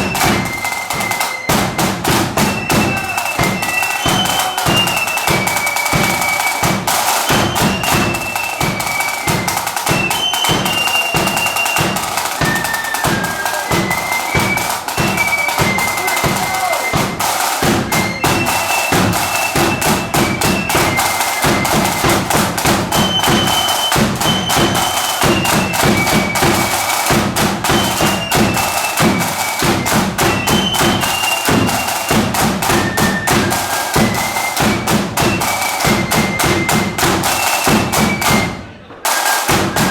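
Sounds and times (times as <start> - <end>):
marching band playing: 0.0 - 39.9.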